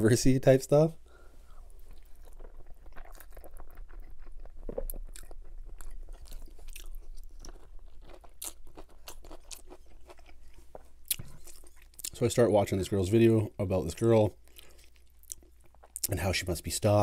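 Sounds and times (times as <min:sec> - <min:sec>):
close chewing with wet mouth clicks: 0:01.6 - 0:12.2, 0:14.4 - 0:16.1.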